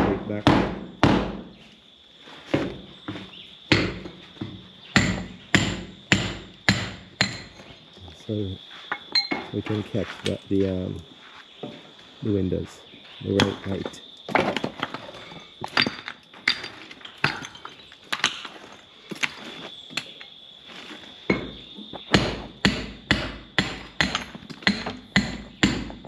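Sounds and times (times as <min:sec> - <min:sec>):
hammer striking nails: 0:00.0 - 0:01.5, 0:03.7 - 0:04.1, 0:05.0 - 0:07.6, 0:22.1 - 0:26.0.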